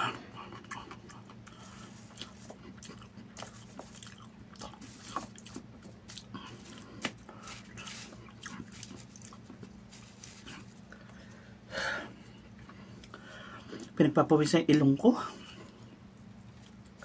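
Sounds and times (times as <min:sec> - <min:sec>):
person chewing with mouth clicks: 0:00.0 - 0:11.2, 0:12.4 - 0:14.0
steady low hum: 0:00.0 - 0:17.0.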